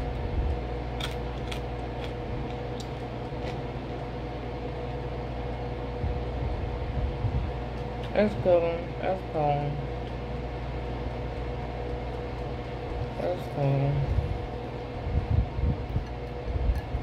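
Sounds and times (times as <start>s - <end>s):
background hum: 0.0s - 17.0s
crisp chewing crunches: 0.4s - 4.1s.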